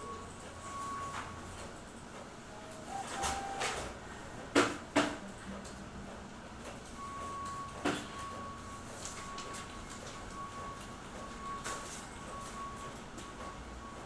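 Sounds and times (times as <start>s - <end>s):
copier clacks and knocks: 0.8s - 8.5s.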